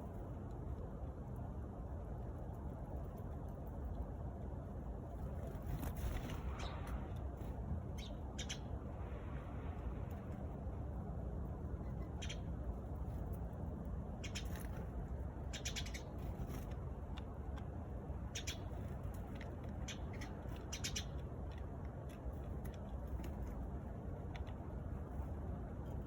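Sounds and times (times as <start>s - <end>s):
low background rumble: 0.0s - 26.0s
sparrows chirping: 5.4s - 8.9s, 11.6s - 13.3s, 14.1s - 16.8s, 18.1s - 21.5s.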